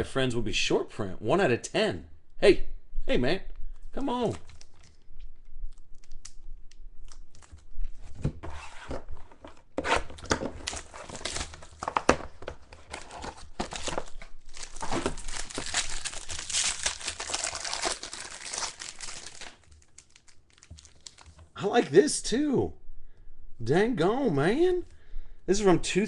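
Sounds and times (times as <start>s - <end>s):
plastic wrappers crinkling: 4.2s - 5.1s, 10.5s - 21.6s.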